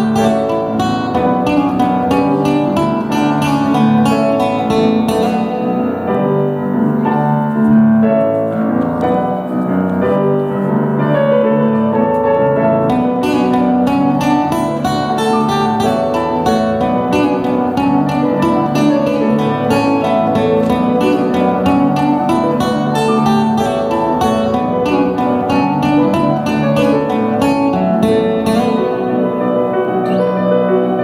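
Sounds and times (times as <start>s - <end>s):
acoustic instrumental music: 0.0s - 31.0s
plucked and strummed chords: 0.0s - 31.0s.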